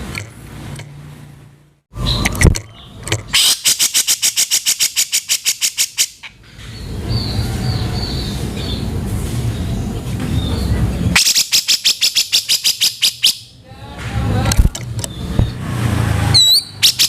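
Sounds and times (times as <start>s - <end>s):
bird harsh rattling call: 2.1s - 8.8s, 11.2s - 13.5s, 16.4s - 17.0s
noisy background: 6.5s - 12.1s, 13.5s - 16.4s.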